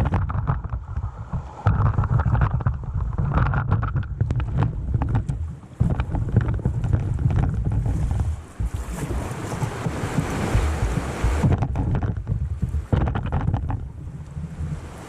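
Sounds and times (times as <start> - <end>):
sharp splashes and knocks: 0.0 - 15.0
wind buffeting microphone: 0.0 - 15.0
river water rushing in rapids: 7.6 - 12.0.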